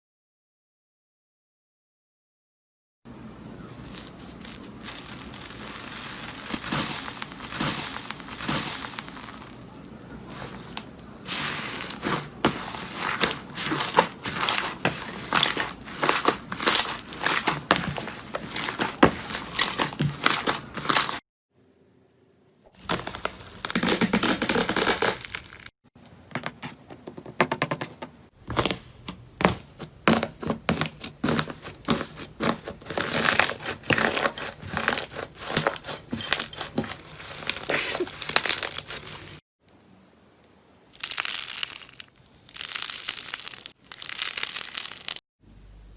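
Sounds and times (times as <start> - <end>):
slime squished by hands: 3.7 - 21.2, 29.4 - 39.4, 41.0 - 45.2.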